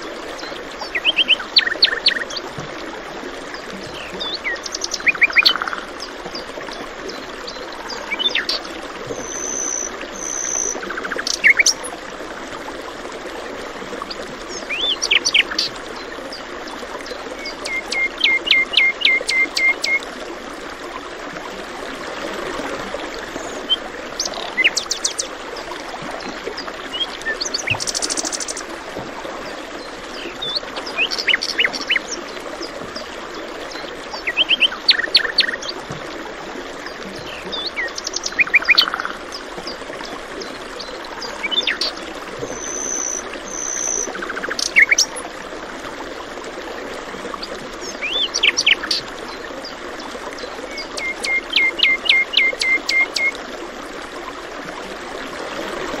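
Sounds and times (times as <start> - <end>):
stream rushing: 0.0 - 56.0
birds chirping and trilling: 40.8 - 45.1.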